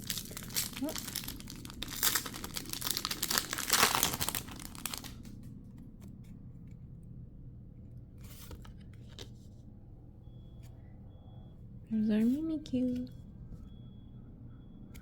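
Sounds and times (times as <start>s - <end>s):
wrapper tearing and crinkling: 0.0s - 5.3s.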